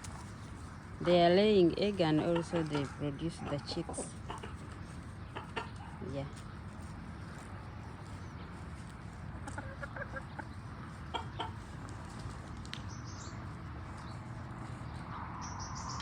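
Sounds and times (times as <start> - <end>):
chickens clucking: 0.0 - 12.8.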